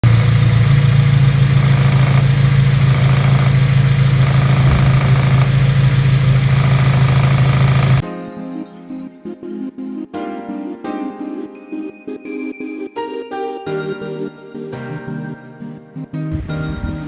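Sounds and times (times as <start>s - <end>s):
car engine droning: 0.0s - 8.0s
music: 8.0s - 17.0s.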